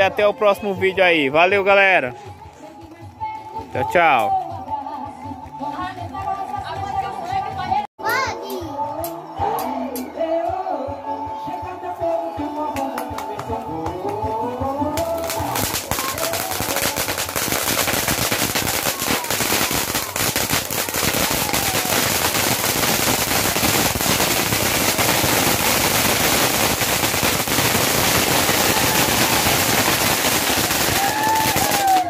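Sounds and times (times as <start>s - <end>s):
firecrackers crackling: 14.8s - 32.0s.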